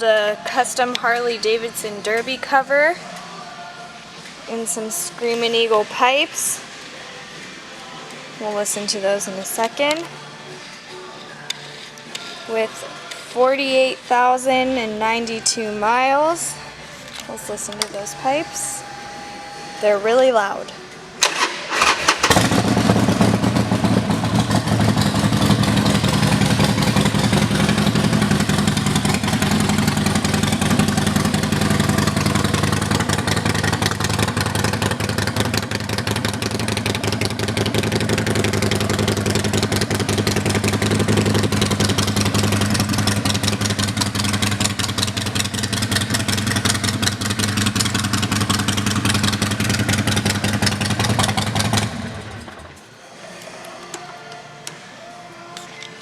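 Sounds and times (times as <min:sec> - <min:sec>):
motorcycle engine starting: 0:21.2 - 0:52.8
loud motorcycle idling: 0:21.8 - 0:52.7.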